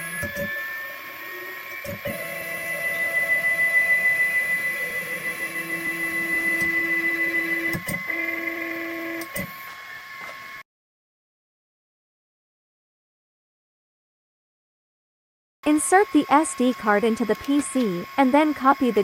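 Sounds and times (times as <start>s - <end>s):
stepper motors whining: 0.0s - 10.6s, 15.7s - 19.0s.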